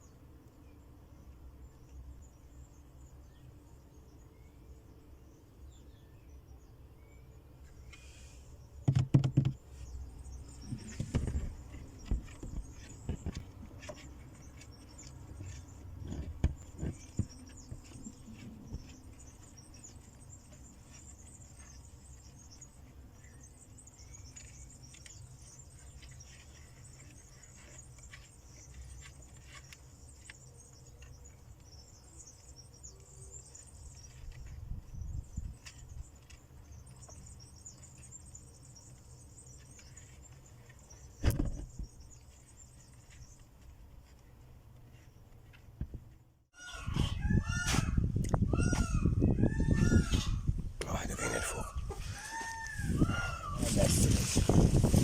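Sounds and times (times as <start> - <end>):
sharp knocks: 8.8 - 9.6
rustling: 9.3 - 46.4, 52.0 - 55.0.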